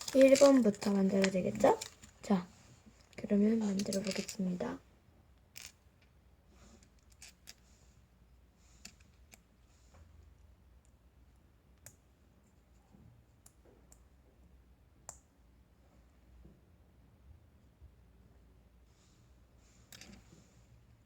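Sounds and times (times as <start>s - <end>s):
toy blocks clicking together: 0.0s - 2.0s, 3.7s - 4.4s.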